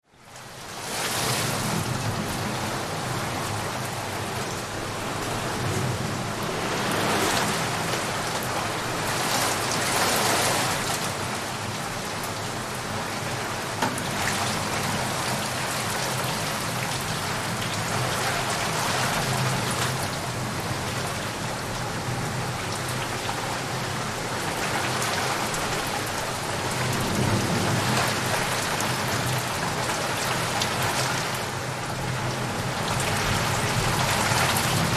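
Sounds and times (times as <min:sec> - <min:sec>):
heavy rain on leaves and puddles: 0:00.0 - 0:34.9
low thunder rumbling: 0:01.6 - 0:10.0, 0:26.4 - 0:30.9.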